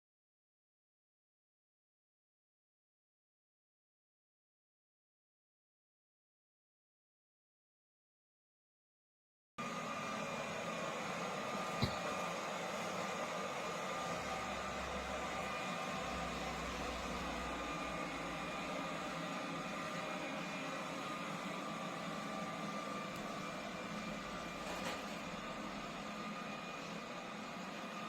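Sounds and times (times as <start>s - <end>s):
fan motor whirring: 9.6s - 28.0s.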